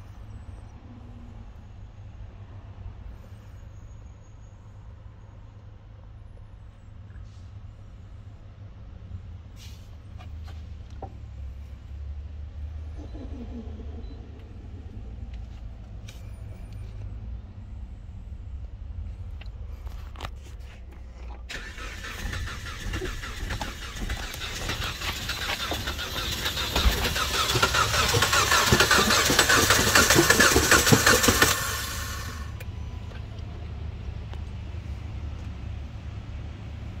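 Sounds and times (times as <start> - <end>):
engine cranking on starter: 21.5 - 32.7.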